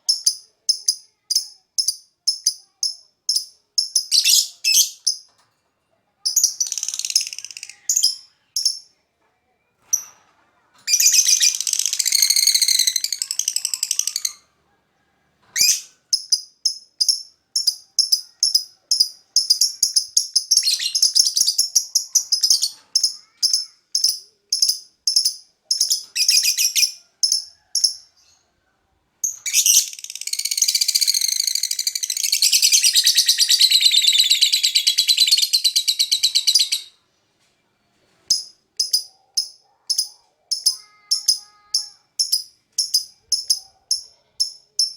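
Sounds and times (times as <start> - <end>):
bird high-pitched chattering: 0.0 - 5.3, 6.2 - 9.0, 10.9 - 14.5, 15.6 - 28.1, 29.2 - 37.0, 38.3 - 44.9.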